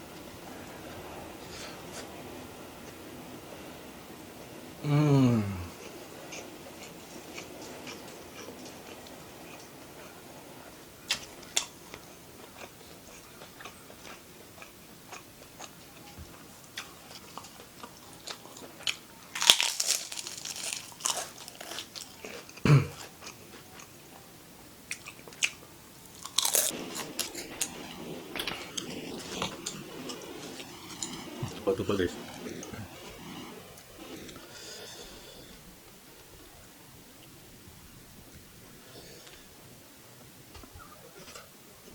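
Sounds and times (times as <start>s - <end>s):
person chewing and crunching food: 11.1s - 24.0s, 24.9s - 27.8s.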